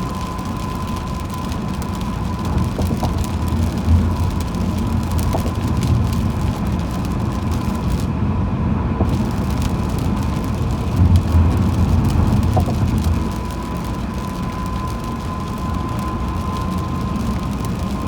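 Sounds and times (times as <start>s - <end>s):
car driving on wet road: 0.0s - 8.2s, 9.0s - 18.0s.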